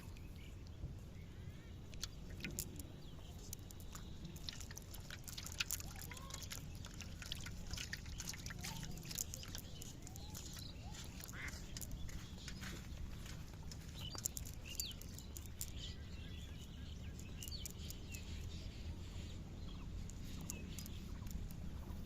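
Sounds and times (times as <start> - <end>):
steady low rumble: 0.0 - 22.0
small sharp clicks: 1.8 - 16.0, 16.6 - 18.6, 20.0 - 22.0
splashes: 3.6 - 11.8.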